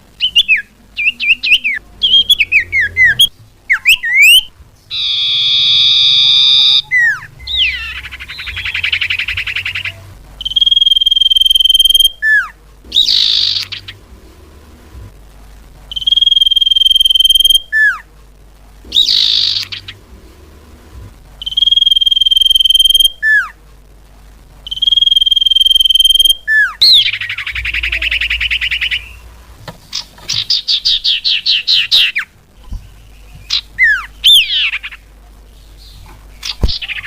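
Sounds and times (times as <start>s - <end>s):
bird singing whistles and trills: 0.2s - 14.0s, 15.9s - 18.0s, 18.9s - 20.0s, 21.4s - 23.5s, 24.7s - 29.3s, 30.4s - 35.0s.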